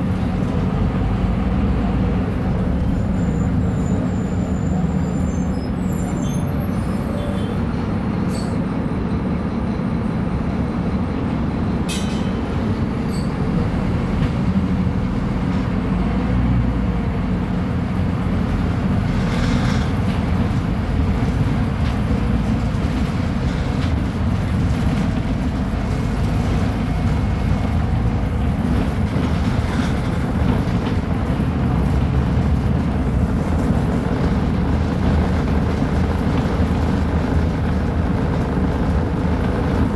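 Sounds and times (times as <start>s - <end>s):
bus diesel engine droning: 0.0s - 39.9s
road and body noise: 11.9s - 39.9s.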